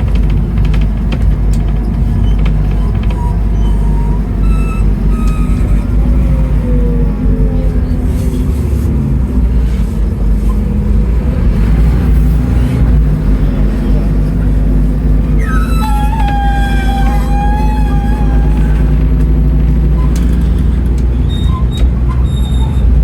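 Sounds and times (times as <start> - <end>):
bus engine humming: 0.0 - 23.0.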